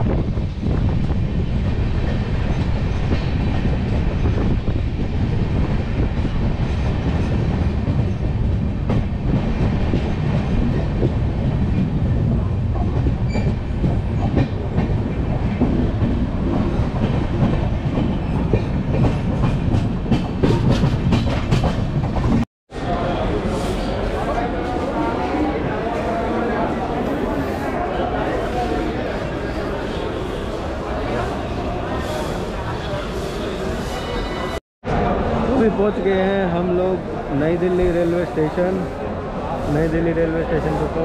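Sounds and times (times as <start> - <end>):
train wheels rumbling on rails: 0.0 - 41.0
clickety-clack over rail joints: 6.0 - 22.4.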